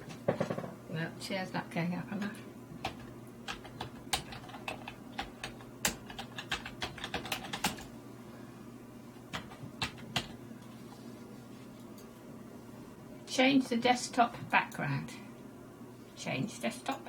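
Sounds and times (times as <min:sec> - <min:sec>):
typing on computer keyboard: 0:02.8 - 0:07.9, 0:09.3 - 0:10.4.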